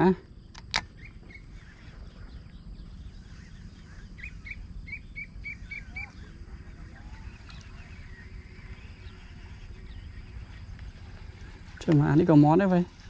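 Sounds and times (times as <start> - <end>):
low background rumble: 0.0 - 13.0
bird chirping: 0.4 - 13.0.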